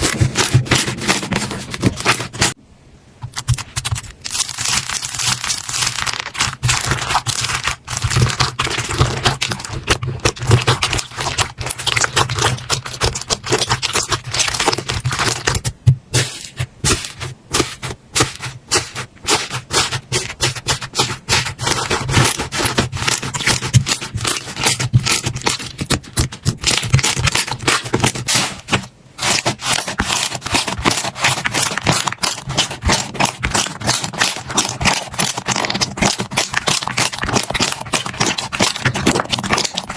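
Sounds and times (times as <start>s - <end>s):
wet scraping: 0.0s - 2.6s, 3.2s - 39.9s
slime crackling and clicking: 3.3s - 15.7s, 21.6s - 28.5s, 29.2s - 39.9s.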